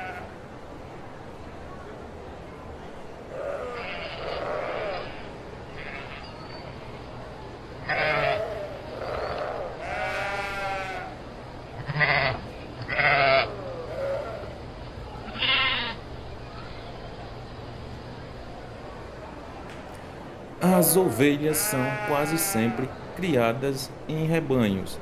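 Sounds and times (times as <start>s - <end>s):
sheep bleating: 9.8s - 11.1s, 20.7s - 25.0s.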